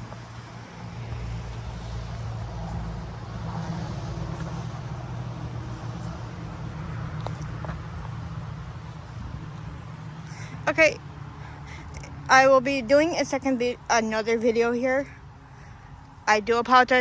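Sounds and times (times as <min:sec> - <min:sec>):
wind blowing across microphone: 0:00.0 - 0:12.2.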